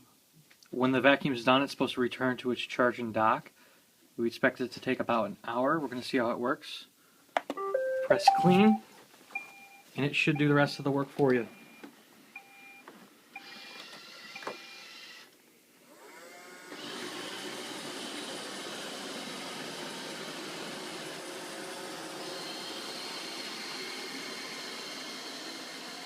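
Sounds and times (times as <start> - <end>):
short beep tones: 7.6 - 8.8
robot vacuum motor humming: 16.7 - 26.0.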